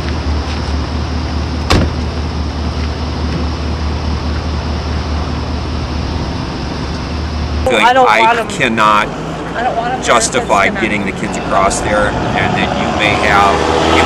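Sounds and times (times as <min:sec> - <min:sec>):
vehicle engine rumbling: 0:00.0 - 0:14.0
sharp knock: 0:01.7 - 0:02.0.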